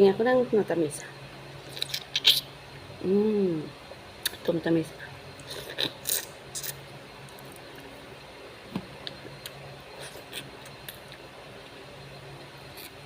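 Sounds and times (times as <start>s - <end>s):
wet chewing: 1.7s - 2.4s.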